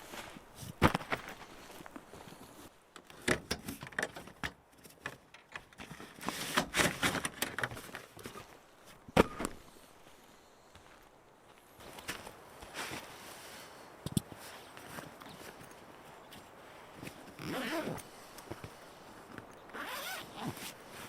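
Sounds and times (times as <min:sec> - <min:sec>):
handling knocks and clicks: 0:02.9 - 0:08.5
rustling: 0:11.8 - 0:21.0.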